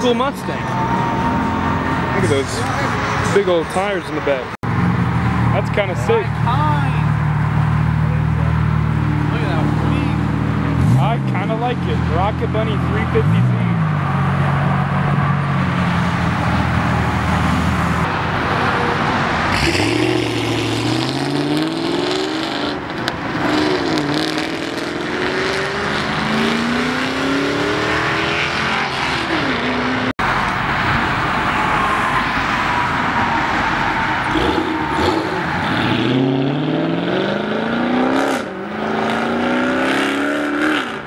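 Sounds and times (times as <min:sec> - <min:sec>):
car accelerating away: 0:19.5 - 0:32.9, 0:34.2 - 0:41.0.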